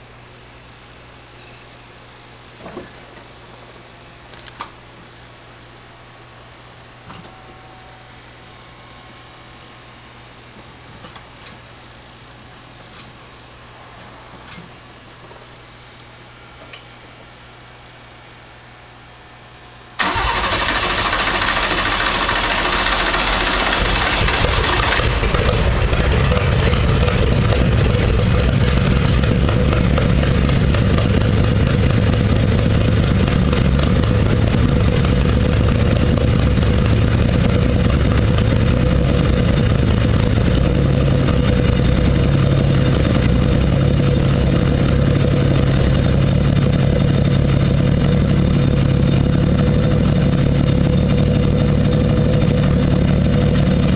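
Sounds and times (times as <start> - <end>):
race car engine starting and idling: 20.0 - 53.9.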